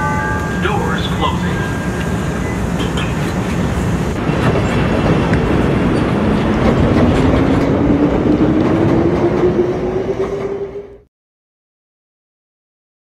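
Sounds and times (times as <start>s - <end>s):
train rail and wheel noise: 0.0s - 11.1s.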